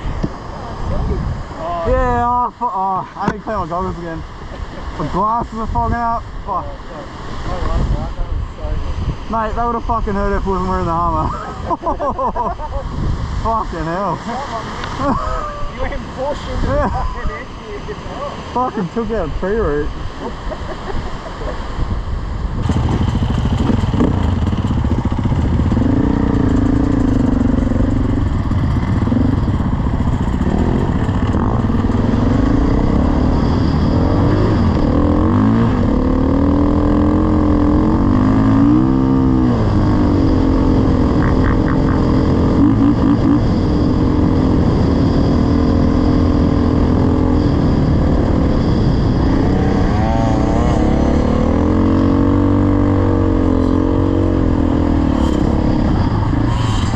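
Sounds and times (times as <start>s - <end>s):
dirt bike engine revving: 22.6s - 56.9s.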